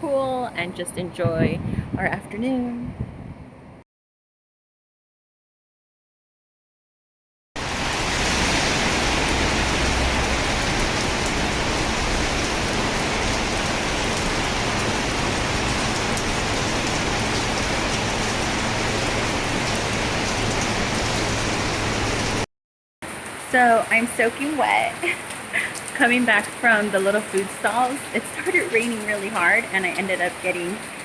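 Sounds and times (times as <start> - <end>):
heavy rain pouring: 7.6 - 31.0.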